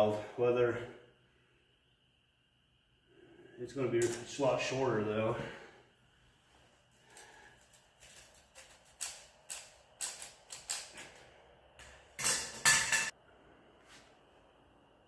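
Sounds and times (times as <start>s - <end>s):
metal parts clinking: 6.6s - 13.1s
metal rattling clatter: 11.8s - 13.1s.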